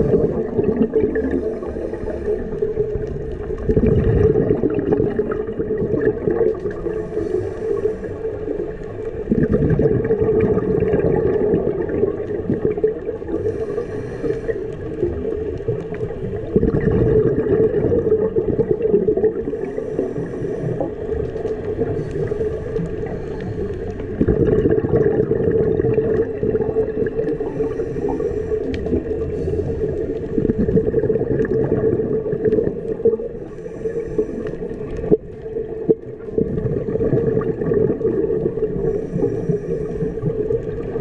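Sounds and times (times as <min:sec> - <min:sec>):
bubbling exhaled air underwater: 0:00.0 - 0:41.0
steady underwater hum: 0:00.0 - 0:41.0
regulator inhalation hiss: 0:01.3 - 0:02.9, 0:06.8 - 0:08.5, 0:13.3 - 0:15.3, 0:19.4 - 0:24.2, 0:27.2 - 0:30.4, 0:33.4 - 0:35.0, 0:38.6 - 0:40.5.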